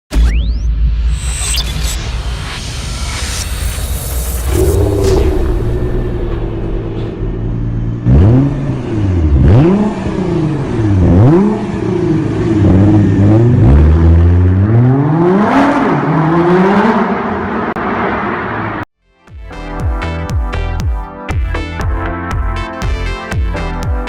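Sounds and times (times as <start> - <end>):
car engine idling and revving: 1.8 - 18.9.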